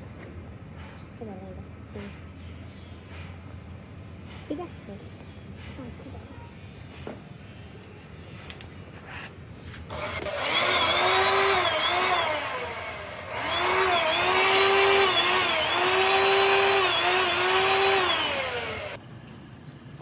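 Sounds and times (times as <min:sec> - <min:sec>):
power tool motor running: 0:09.9 - 0:19.0.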